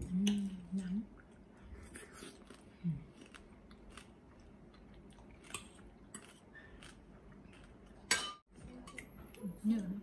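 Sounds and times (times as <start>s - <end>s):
crunchy chewing: 1.7s - 8.1s.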